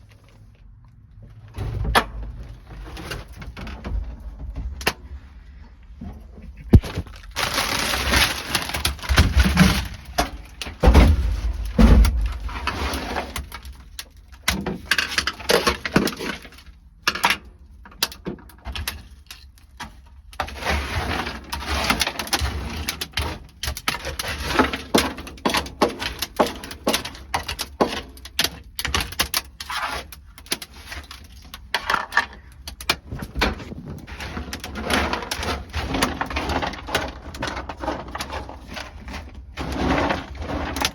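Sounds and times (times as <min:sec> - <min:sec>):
frozen mat cracking off metal: 0:06.6 - 0:16.7.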